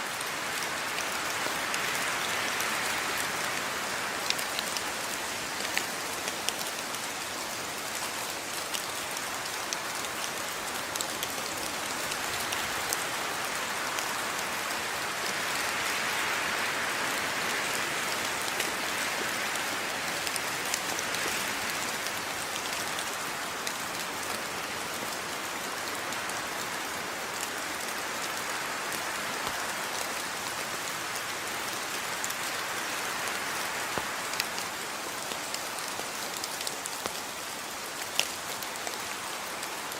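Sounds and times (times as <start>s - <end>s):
steady rain hiss: 0.0s - 39.9s
individual raindrop ticks: 27.4s - 39.9s.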